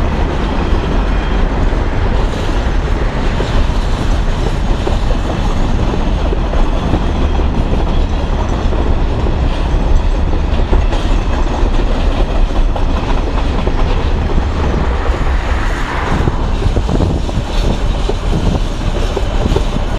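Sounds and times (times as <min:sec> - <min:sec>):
wheels clattering over rail joints: 0:00.0 - 0:15.7
freight train rumble: 0:00.0 - 0:19.9.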